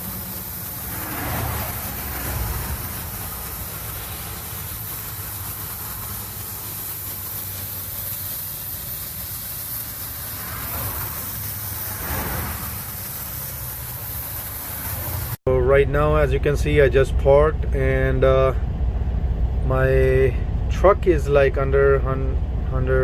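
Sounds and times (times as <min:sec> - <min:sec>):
constant hiss: 0:00.0 - 0:18.6, 0:19.6 - 0:23.0
diesel truck engine running: 0:00.0 - 0:23.0.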